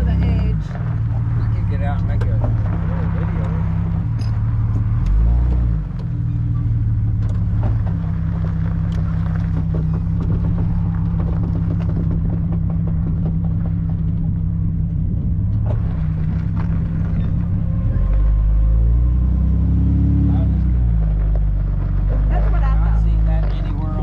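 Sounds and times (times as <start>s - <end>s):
knocks and rattles on rough track: 0.0s - 19.4s, 20.3s - 24.0s
car engine running at low speed: 0.0s - 24.0s.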